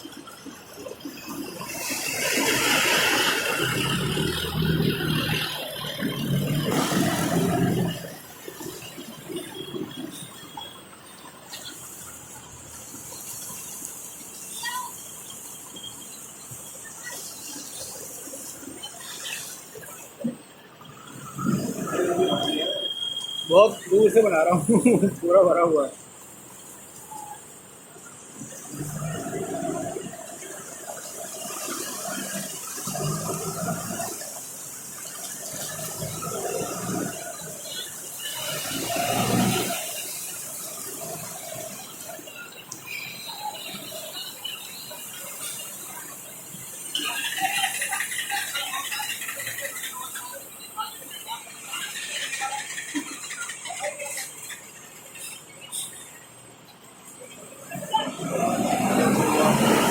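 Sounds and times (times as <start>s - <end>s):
rain on wet street: 0.0s - 20.4s, 21.1s - 56.2s, 56.9s - 59.9s
vehicle passing: 2.0s - 8.2s, 57.8s - 59.9s.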